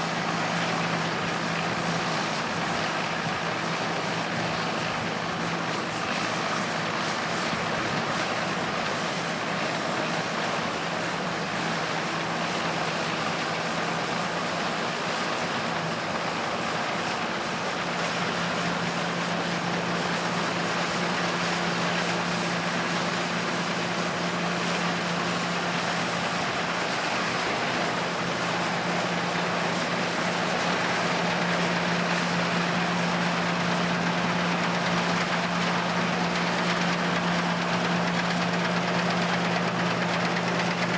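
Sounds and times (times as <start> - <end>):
farm machinery humming: 14.1 - 40.9.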